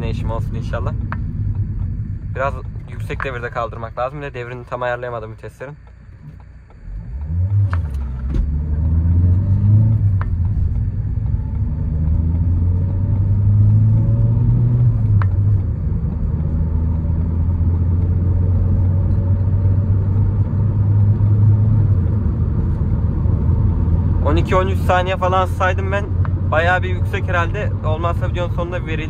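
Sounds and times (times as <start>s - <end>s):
diesel engine revving through gears: 6.3s - 29.0s.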